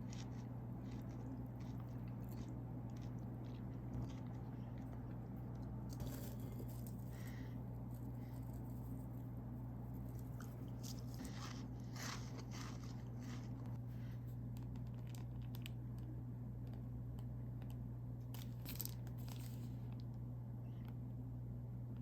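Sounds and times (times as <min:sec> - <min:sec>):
crunching crisp snack: 0:00.0 - 0:09.0, 0:09.9 - 0:13.8, 0:14.6 - 0:16.1, 0:17.6 - 0:20.1
steady low hum: 0:00.0 - 0:22.0.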